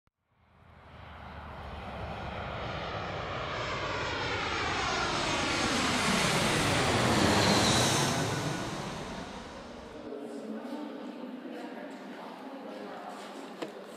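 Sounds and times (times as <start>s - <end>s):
airplane passing overhead: 0.4s - 10.9s.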